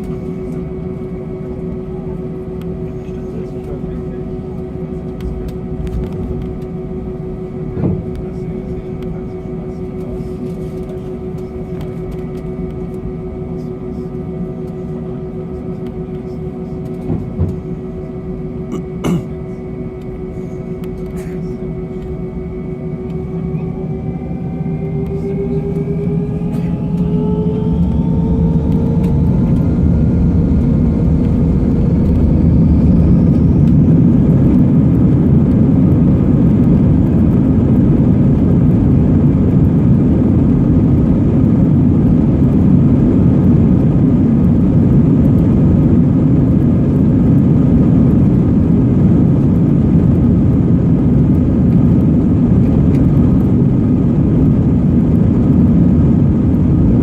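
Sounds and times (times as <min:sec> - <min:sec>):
jet engines spooling up: 0:20.1 - 0:57.0.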